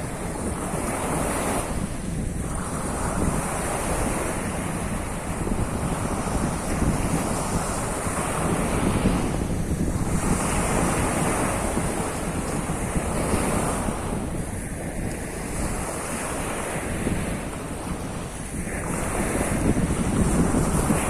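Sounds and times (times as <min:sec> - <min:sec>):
surf washing onto shore: 0:00.0 - 0:21.0
wind rumbling on microphone: 0:00.0 - 0:21.0.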